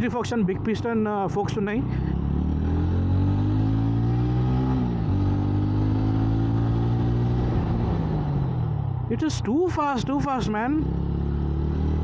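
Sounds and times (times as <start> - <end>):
motorcycle engine accelerating: 1.6 - 9.2, 10.0 - 12.0.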